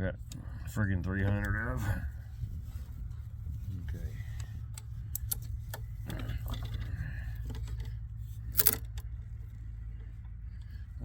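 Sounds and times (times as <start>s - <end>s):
steady low hum: 0.0s - 11.0s
small metal parts clinking: 5.1s - 9.1s
metal parts clattering: 8.5s - 8.9s.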